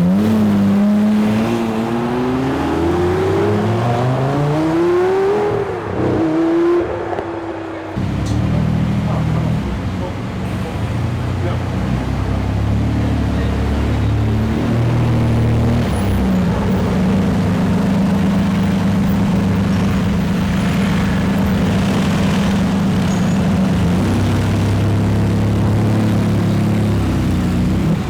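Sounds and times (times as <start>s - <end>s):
car engine running at low revs: 0.0s - 28.0s.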